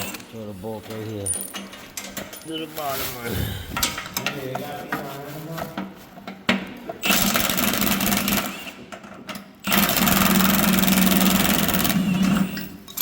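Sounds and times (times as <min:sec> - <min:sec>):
impact wrench rattling: 0:00.8 - 0:02.6, 0:03.6 - 0:04.4.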